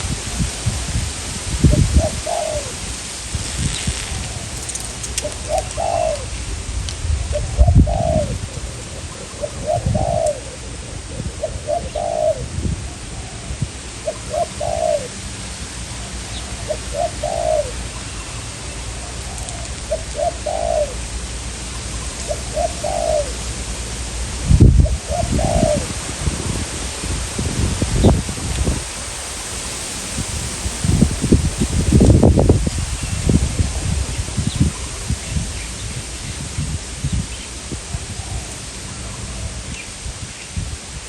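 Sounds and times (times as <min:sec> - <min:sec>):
wind buffeting microphone: 0:00.0 - 0:41.0
doves cooing: 0:01.7 - 0:06.7, 0:07.3 - 0:24.0, 0:24.7 - 0:26.2.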